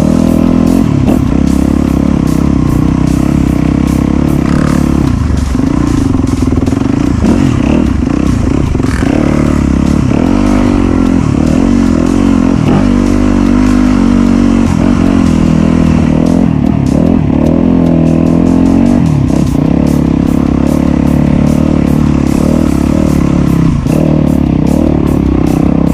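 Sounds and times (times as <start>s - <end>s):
dirt bike engine revving: 0.0s - 25.9s.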